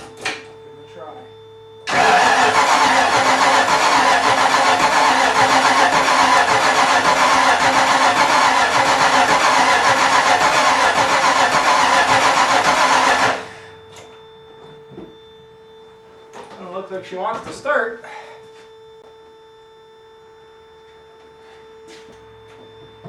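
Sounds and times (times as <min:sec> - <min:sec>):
car engine cranking: 0:01.9 - 0:13.7.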